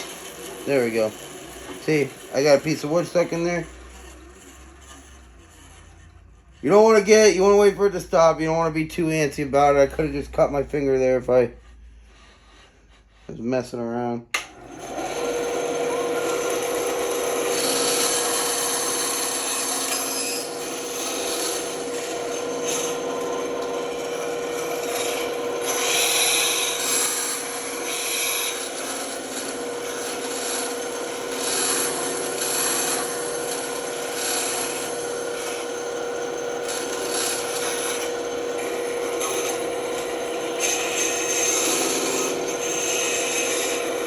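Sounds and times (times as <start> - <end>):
band saw humming: 0.0 - 13.6, 14.4 - 44.0
saw blade rasping through wood: 0.0 - 13.6, 14.8 - 44.0.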